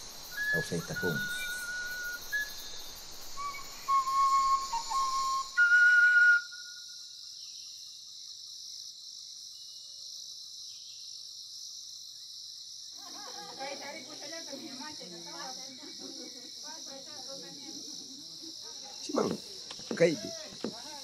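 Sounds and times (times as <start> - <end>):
insects droning: 0.0 - 21.0
whistled notes: 0.3 - 2.8, 3.4 - 6.9.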